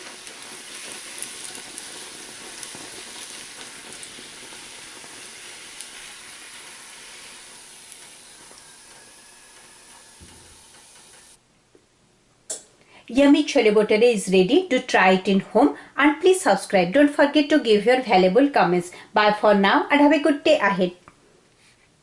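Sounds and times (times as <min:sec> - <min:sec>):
bread deep-frying in hot oil: 0:00.0 - 0:11.4.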